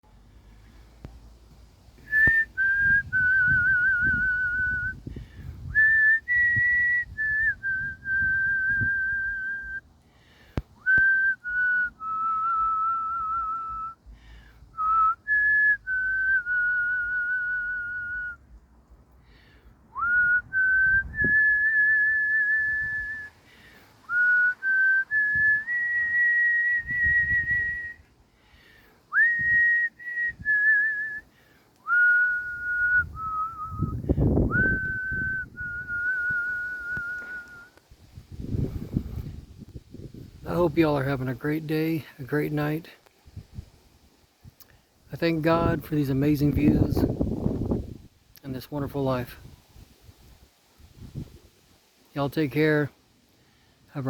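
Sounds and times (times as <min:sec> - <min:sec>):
person whistling a tune: 0:02.0 - 0:05.0, 0:05.6 - 0:09.8, 0:10.8 - 0:14.0, 0:14.8 - 0:18.4, 0:20.0 - 0:23.3, 0:24.1 - 0:28.1, 0:29.1 - 0:31.2, 0:31.8 - 0:37.8.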